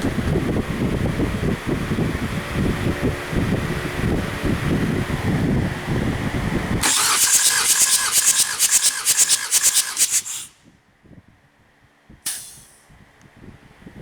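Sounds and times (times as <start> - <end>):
pressurised air hissing: 6.8 - 10.6, 12.3 - 12.8.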